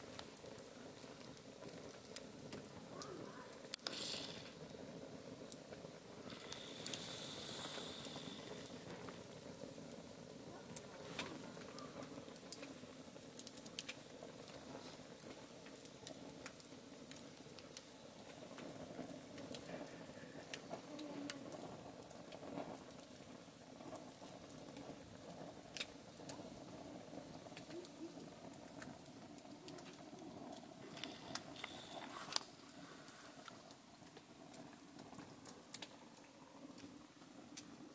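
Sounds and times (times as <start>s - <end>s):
campfire crackling: 0.0s - 37.9s.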